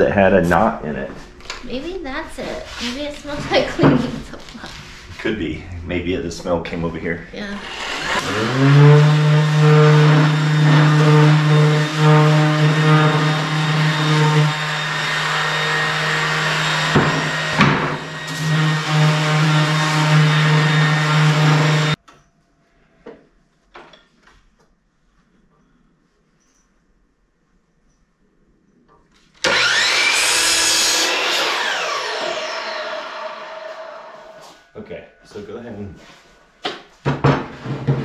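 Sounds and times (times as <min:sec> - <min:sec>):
power tool motor running: 0:07.5 - 0:22.0, 0:29.4 - 0:34.5.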